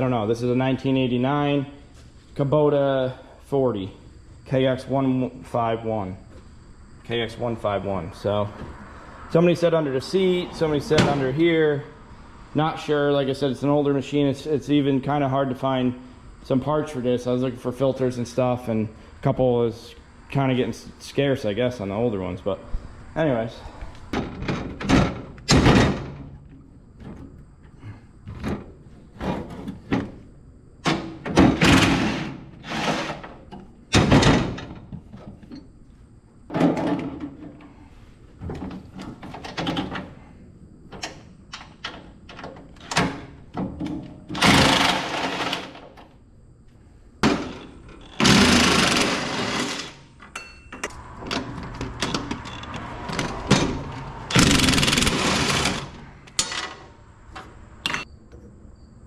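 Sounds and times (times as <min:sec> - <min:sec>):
metal clunks and rattles: 0:24.1 - 0:35.7, 0:36.5 - 0:37.8, 0:38.4 - 0:40.3, 0:40.9 - 0:46.1, 0:47.2 - 0:49.0, 0:50.2 - 0:58.4.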